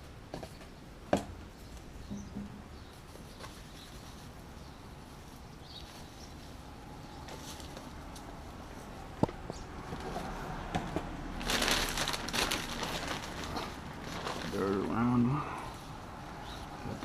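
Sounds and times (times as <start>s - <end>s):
faint high bird chirps: 2.0s - 4.8s.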